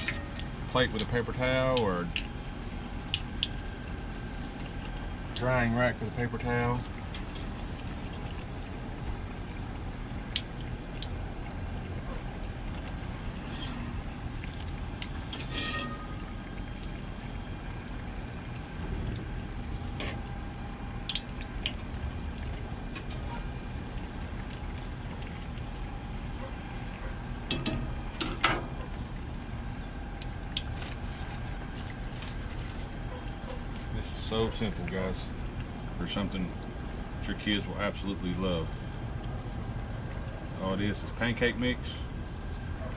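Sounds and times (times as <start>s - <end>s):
oil popping: 0.0s - 29.3s, 30.0s - 33.9s
hot oil bubbling: 0.0s - 42.8s.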